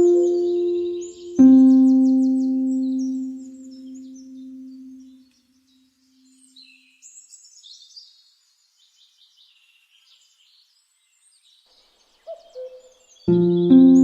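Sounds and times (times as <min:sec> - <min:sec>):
low held musical tone: 0:00.0 - 0:05.2, 0:13.3 - 0:14.0
faint songbirds chirping: 0:00.0 - 0:14.0.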